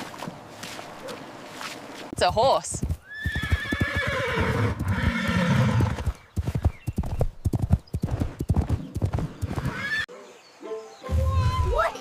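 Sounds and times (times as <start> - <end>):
hooves clip-clopping: 0.0 - 10.0
horse neighing: 3.1 - 6.0.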